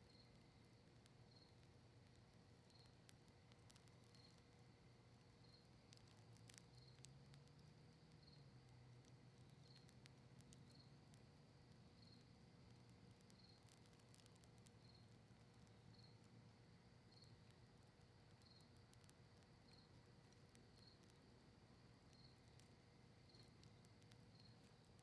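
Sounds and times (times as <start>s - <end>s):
faint campfire crackling: 0.0s - 25.0s
cricket chirping: 13.3s - 16.3s, 18.3s - 24.8s.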